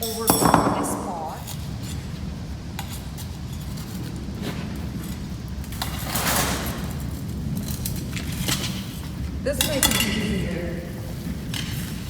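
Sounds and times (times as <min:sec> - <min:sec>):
rustling scrape: 0:01.5 - 0:09.2.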